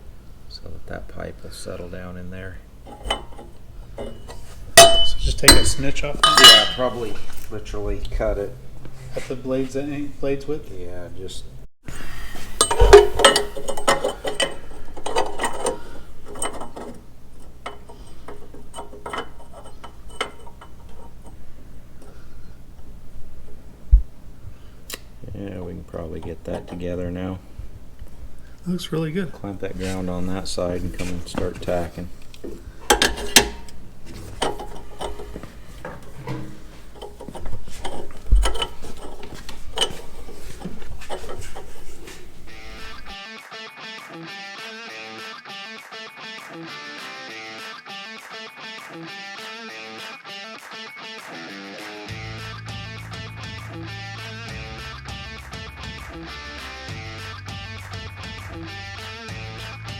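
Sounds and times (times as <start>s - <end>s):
metal tools clicking and clinking: 2.8s - 7.3s, 12.3s - 22.3s, 26.1s - 27.0s, 30.6s - 43.2s
metal pipe parts clanking: 2.8s - 8.2s, 11.9s - 23.7s, 25.4s - 43.2s.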